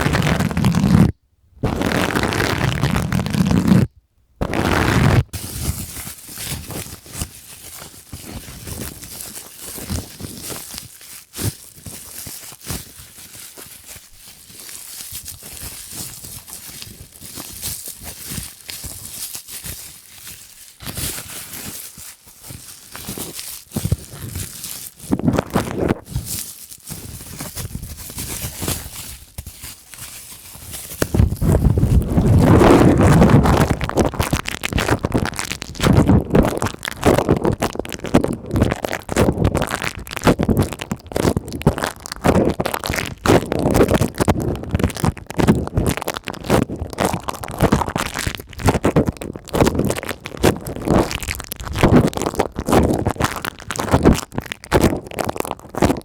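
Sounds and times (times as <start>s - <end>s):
plastic crinkling: 4.4s - 56.0s
deep rubbing: 31.0s - 37.3s.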